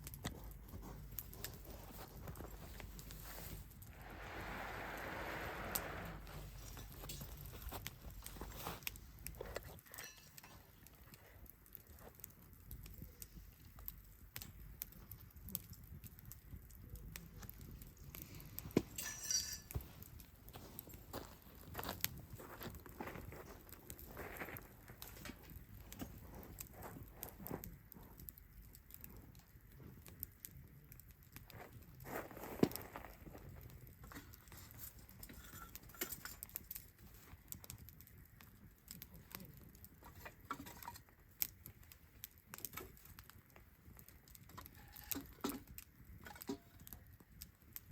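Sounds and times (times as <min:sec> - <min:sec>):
faint low rumble: 0:00.0 - 0:09.6
wood fire crackling: 0:00.0 - 0:47.9.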